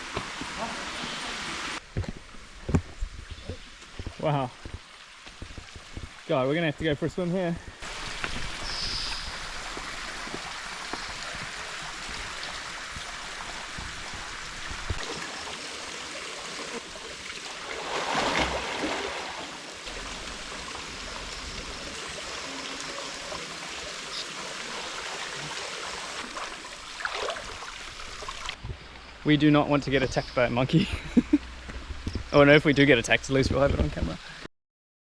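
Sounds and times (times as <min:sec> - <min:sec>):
waterfall rushing: 0:00.0 - 0:01.8, 0:07.8 - 0:28.6.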